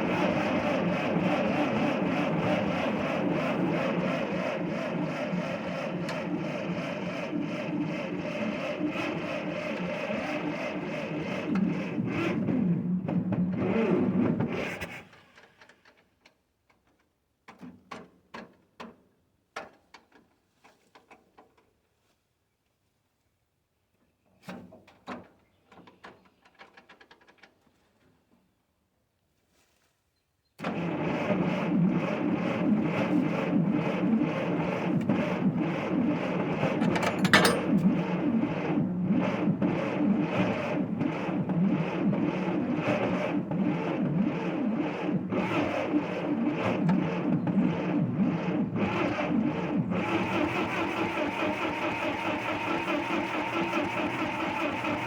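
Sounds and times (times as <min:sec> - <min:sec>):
starter motor cranking engine: 0:30.6 - 0:55.0.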